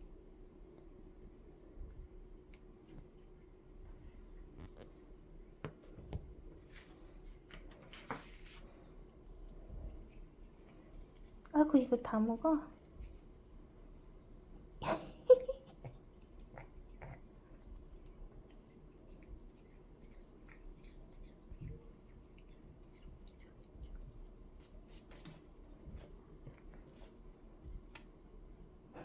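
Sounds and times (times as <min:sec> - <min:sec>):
pets chewing grass: 0:15.7 - 0:27.0.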